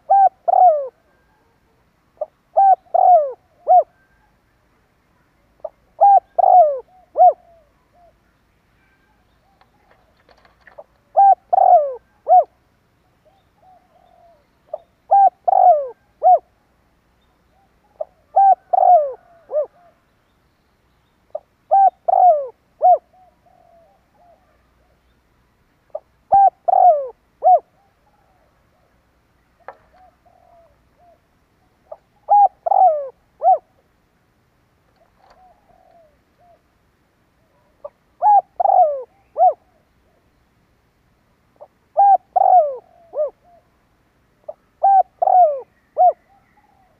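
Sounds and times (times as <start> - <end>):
dove cooing: 0.0 - 4.4, 5.6 - 8.2, 8.8 - 12.6, 13.2 - 16.5, 17.5 - 20.0, 21.3 - 25.0, 25.9 - 28.9, 29.6 - 33.8, 35.0 - 36.7, 37.4 - 40.3, 41.6 - 43.8, 44.4 - 46.9.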